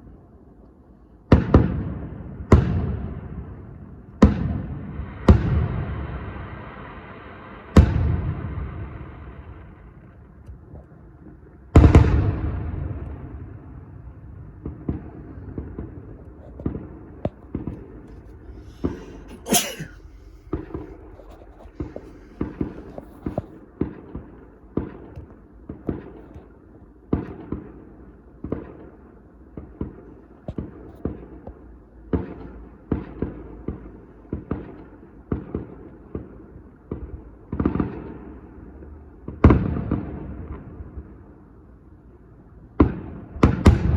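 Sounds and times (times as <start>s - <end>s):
fireworks bangs and pops: 14.5s - 19.8s, 20.4s - 29.0s.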